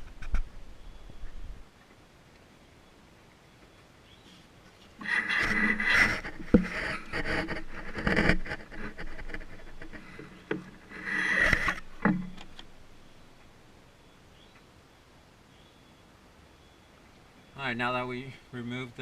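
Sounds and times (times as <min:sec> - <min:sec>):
hose rustling and scraping: 0:04.7 - 0:12.7.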